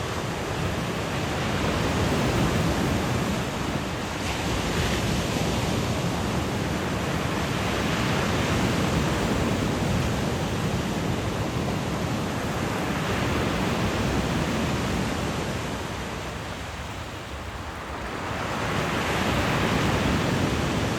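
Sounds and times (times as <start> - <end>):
sea waves breaking on shore: 0.0 - 20.9
stream rushing: 0.0 - 20.9.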